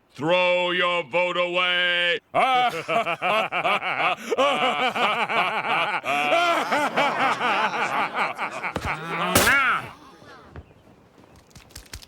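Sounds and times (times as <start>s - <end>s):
cartoon alien voices laughing: 2.4s - 10.5s.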